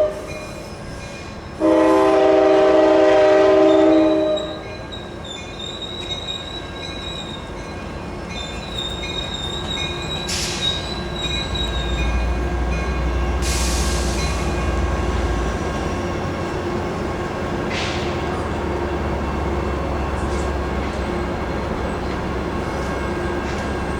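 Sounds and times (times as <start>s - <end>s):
deep train rumble: 0.0s - 23.9s
wheel squeal: 4.4s - 12.2s.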